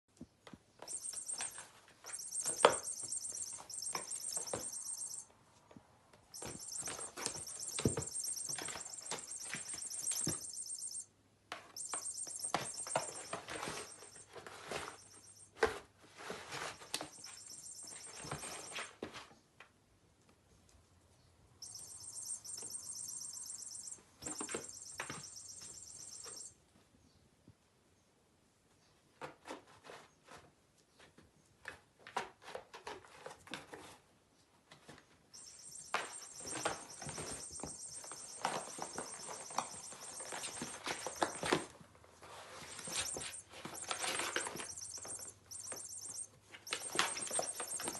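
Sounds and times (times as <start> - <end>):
squeaking toy mouse: 0.8 - 5.3, 6.3 - 11.1, 11.8 - 15.5, 16.8 - 18.9, 21.6 - 26.5, 35.4 - 41.7, 42.6 - 47.9.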